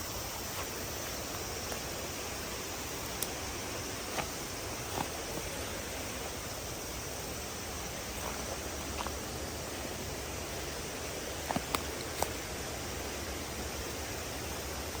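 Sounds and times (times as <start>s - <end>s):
flowing water rushing: 0.0s - 15.0s
faint ticks: 3.0s - 3.4s.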